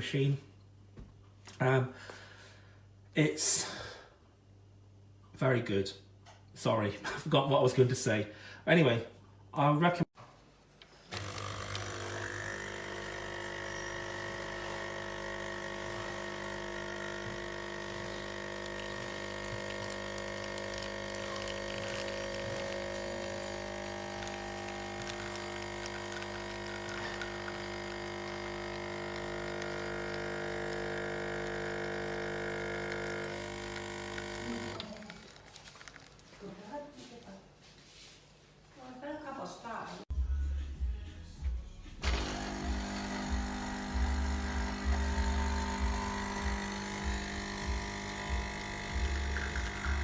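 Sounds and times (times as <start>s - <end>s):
espresso machine pump humming: 11.1s - 35.8s, 42.0s - 50.0s.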